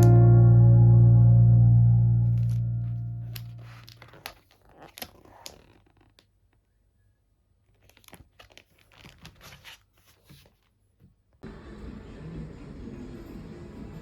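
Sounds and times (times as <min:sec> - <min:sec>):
background music: 0:00.0 - 0:03.7
packaging crinkling and clicking: 0:07.8 - 0:09.8.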